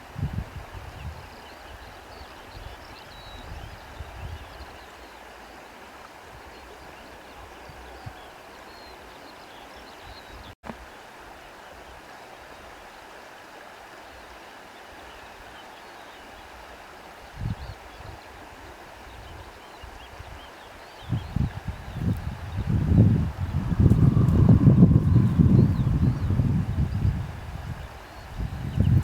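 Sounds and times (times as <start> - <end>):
wind blowing: 0.0 - 1.9, 21.0 - 29.0.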